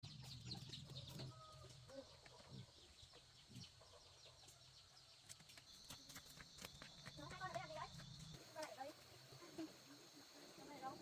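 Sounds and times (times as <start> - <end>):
chickens clucking: 0.1 - 4.7.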